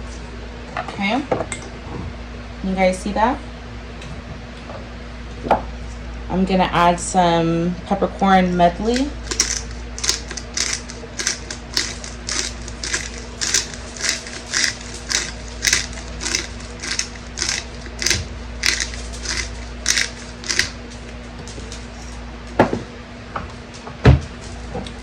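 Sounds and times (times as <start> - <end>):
pepper grinder crunching: 8.8 - 22.2.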